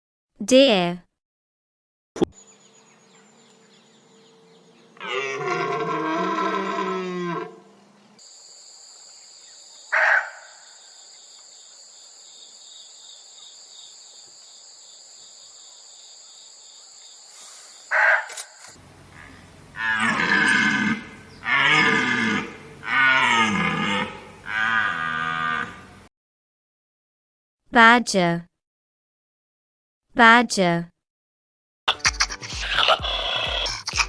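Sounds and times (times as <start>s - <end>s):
insect drone: 2.4s - 26.1s
deer bellowing: 5.0s - 7.6s, 17.9s - 26.0s.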